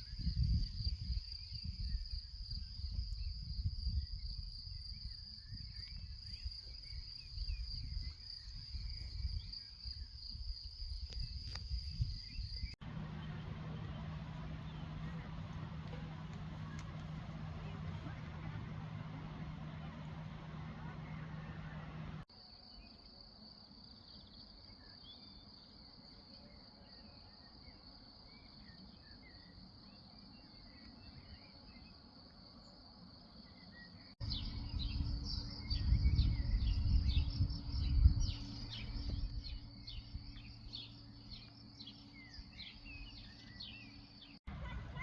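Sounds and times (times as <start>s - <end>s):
bird chirps: 11.9s - 22.2s, 33.5s - 45.0s
low rumble: 12.8s - 22.3s, 34.2s - 43.2s.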